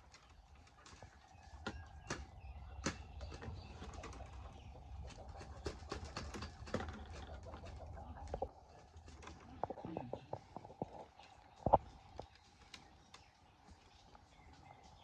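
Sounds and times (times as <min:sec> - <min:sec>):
sharp knocks and clicks: 0:00.8 - 0:08.5.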